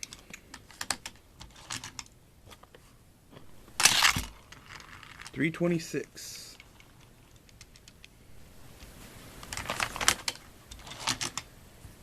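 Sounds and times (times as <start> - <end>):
small plastic clicks and rattles: 6.5 - 8.1.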